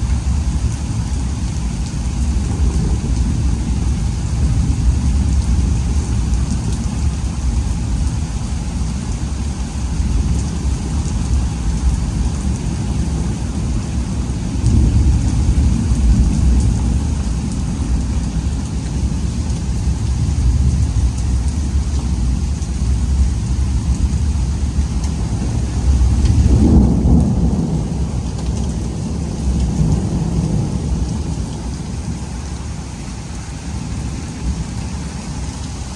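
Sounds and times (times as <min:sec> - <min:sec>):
low thunder rumble: 0:00.0 - 0:35.2
heavy rain falling: 0:00.0 - 0:35.9.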